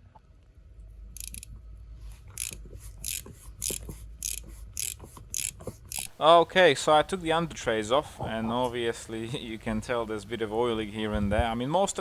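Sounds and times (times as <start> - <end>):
ratchet wrench clicking: 1.2 - 1.4, 2.4 - 6.2.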